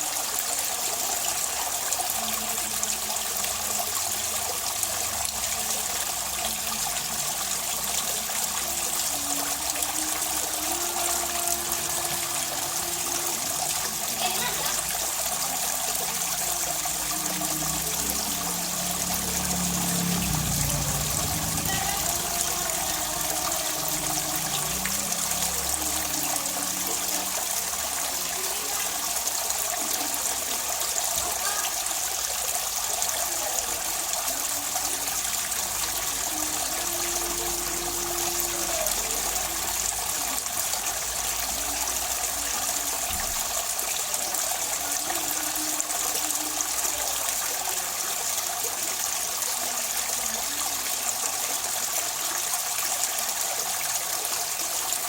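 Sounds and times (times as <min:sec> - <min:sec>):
water trickling and splashing: 0:00.0 - 0:55.0.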